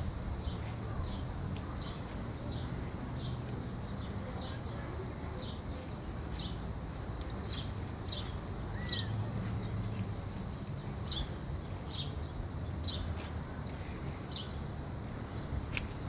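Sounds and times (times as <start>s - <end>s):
steady low rumble: 0.0s - 4.4s
songbird chirping: 0.3s - 16.0s.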